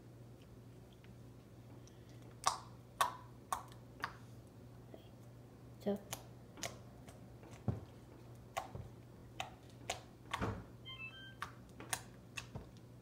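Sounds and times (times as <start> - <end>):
short electronic beeps: 10.8 - 11.4.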